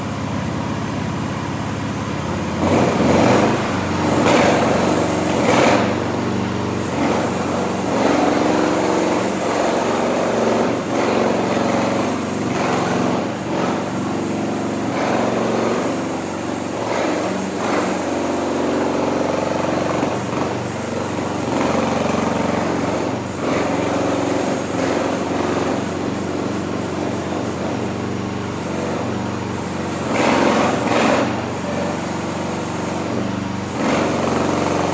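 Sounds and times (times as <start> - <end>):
mini excavator engine running: 0.0 - 34.9.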